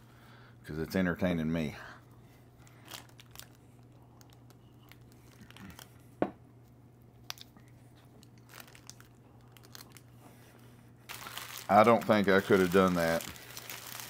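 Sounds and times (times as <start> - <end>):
low steady hum: 0.0 - 14.0
plastic wrapper crinkling: 2.6 - 6.0, 8.2 - 10.2, 11.1 - 14.0.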